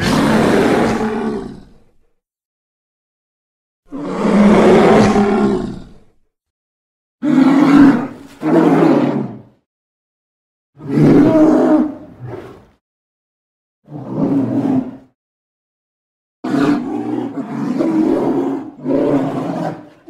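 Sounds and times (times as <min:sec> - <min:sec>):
bear roaring: 0:00.0 - 0:02.0, 0:03.9 - 0:06.2, 0:07.2 - 0:09.5, 0:10.8 - 0:12.7, 0:13.9 - 0:15.1, 0:16.5 - 0:20.0.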